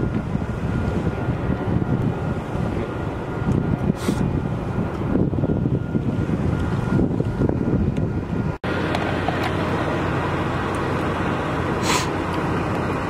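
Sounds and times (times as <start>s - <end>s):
idling vehicles and traffic rumble: 0.0s - 13.0s
wind buffeting microphone: 0.0s - 13.0s
brief hiss: 11.8s - 12.2s.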